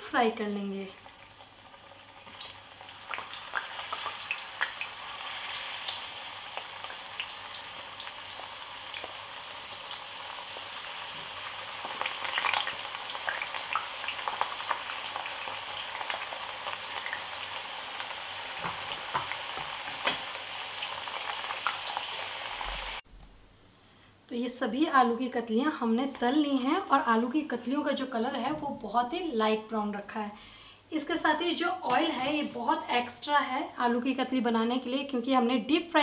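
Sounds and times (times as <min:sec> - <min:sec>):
potato slices sizzling in oil: 0:00.0 - 0:23.0.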